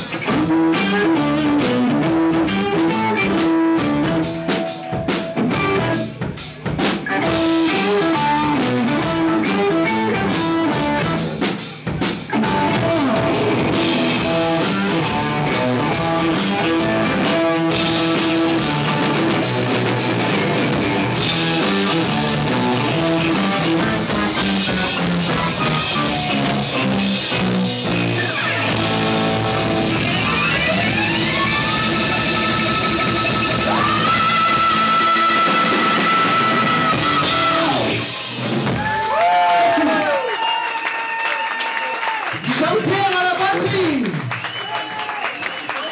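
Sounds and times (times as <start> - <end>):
fast drumming: 0.0 - 40.1
electric guitar: 0.0 - 40.3.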